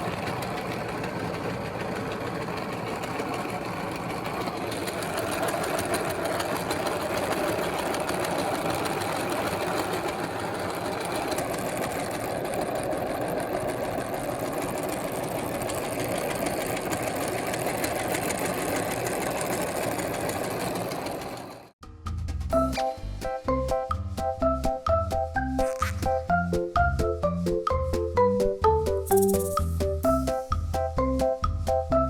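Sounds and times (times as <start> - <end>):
electric meat grinder whirring: 4.0 - 21.6
music with a beat: 21.8 - 32.0.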